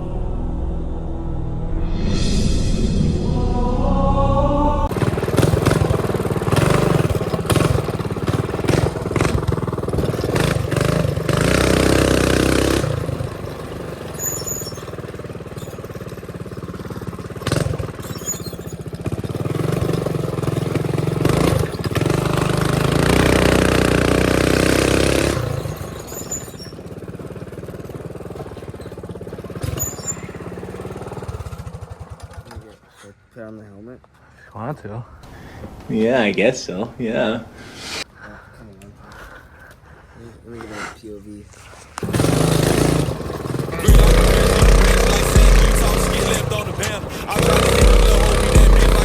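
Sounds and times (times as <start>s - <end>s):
mini bike engine revving: 4.9s - 33.1s, 41.4s - 49.0s.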